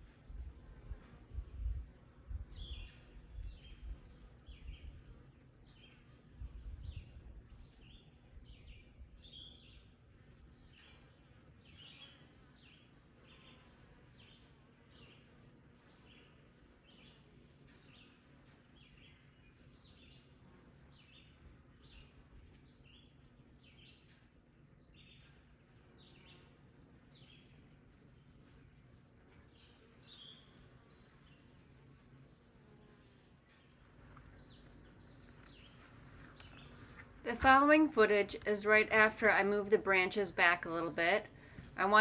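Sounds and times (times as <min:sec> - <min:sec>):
outdoor ambience: 0:00.0 - 0:42.0
bird chirping: 0:32.6 - 0:42.0.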